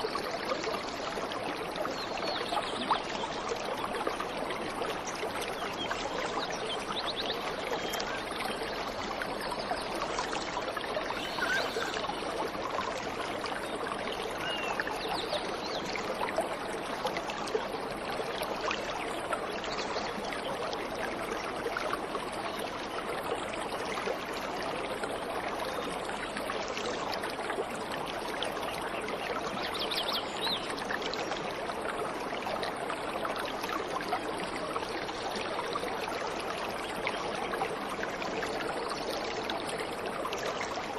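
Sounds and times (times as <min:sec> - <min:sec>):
waterfall rushing: 0:11.2 - 0:12.0.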